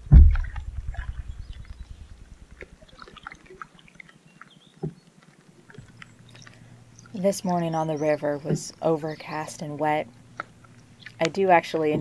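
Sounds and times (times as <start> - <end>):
low rumble: 0.0 - 2.9.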